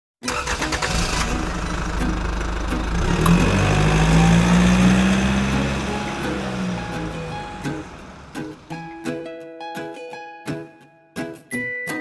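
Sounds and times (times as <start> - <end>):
car engine revving: 0.3 - 8.8.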